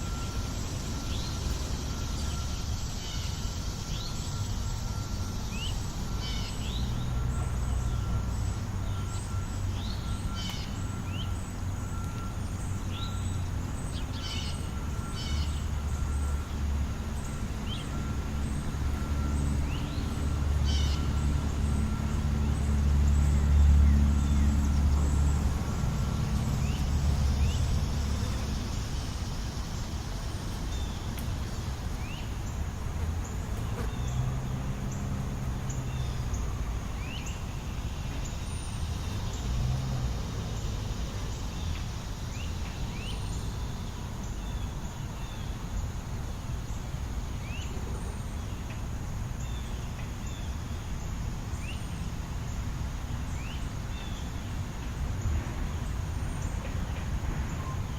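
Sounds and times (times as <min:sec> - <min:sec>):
vehicle passing: 0:00.0 - 0:44.4
distant traffic: 0:00.0 - 0:57.9.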